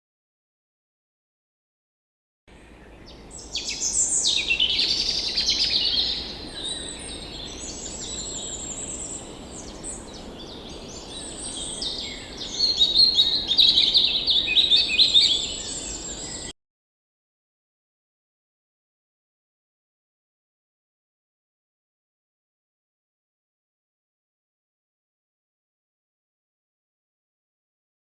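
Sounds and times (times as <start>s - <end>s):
birds chirping and singing: 2.6s - 16.5s.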